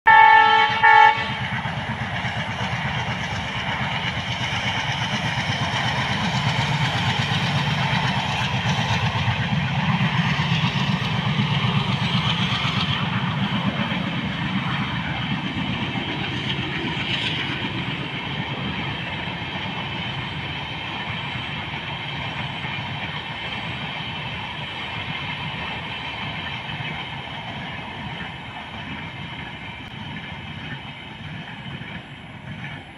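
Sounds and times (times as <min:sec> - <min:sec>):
diesel locomotive horn blasts: 0:00.1 - 0:01.6
train passing with deep rumble: 0:00.1 - 0:32.9.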